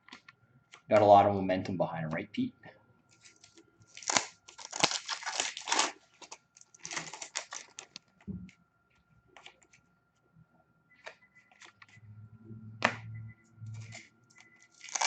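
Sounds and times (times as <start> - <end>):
wrappers being torn and crinkled: 3.2 - 8.0, 14.7 - 15.0.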